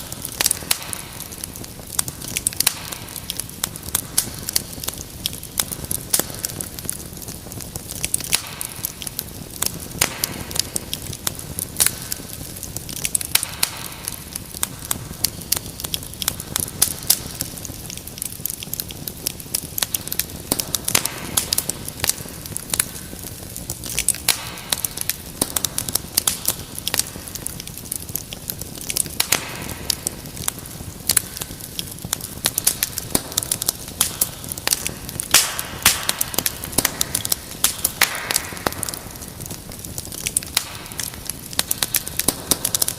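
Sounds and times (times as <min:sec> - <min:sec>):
wood fire crackling: 0:00.0 - 0:42.9.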